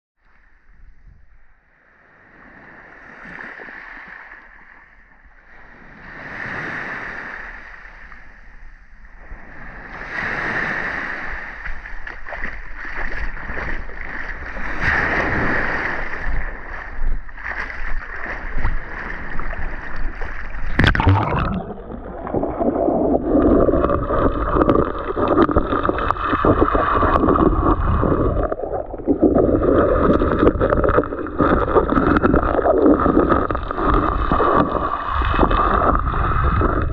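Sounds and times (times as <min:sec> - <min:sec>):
sea waves washing onto shore: 0:09.2 - 0:36.9
muffled underwater bubbling: 0:20.4 - 0:36.9.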